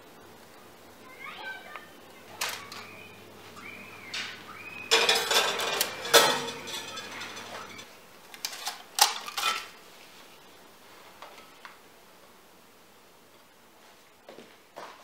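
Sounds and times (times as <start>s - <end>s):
dishes and cutlery clattering: 4.1s - 7.9s, 8.5s - 9.7s.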